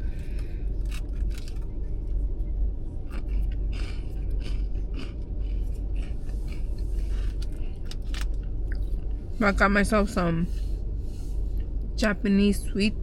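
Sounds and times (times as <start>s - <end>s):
low rumble: 0.0s - 13.0s
wafers crackling while eaten: 0.1s - 2.2s, 3.0s - 9.1s.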